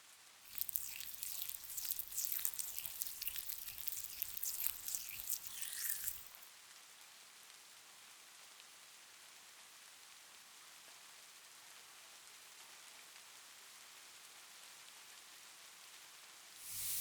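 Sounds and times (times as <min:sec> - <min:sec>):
soft rain hiss: 0:00.0 - 0:06.5, 0:07.4 - 0:17.0
facial scrub rubbing: 0:00.5 - 0:06.5, 0:16.6 - 0:17.0.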